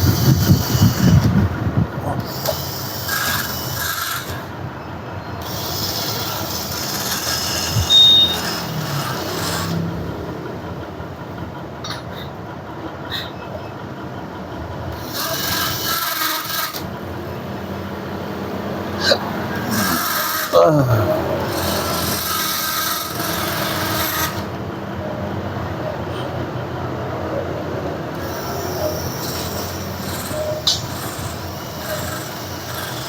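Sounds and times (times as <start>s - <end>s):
tool rasping and scraping metal: 0.0s - 1.5s, 2.2s - 4.5s, 5.4s - 9.9s, 14.9s - 17.0s, 19.0s - 24.6s, 28.1s - 33.0s.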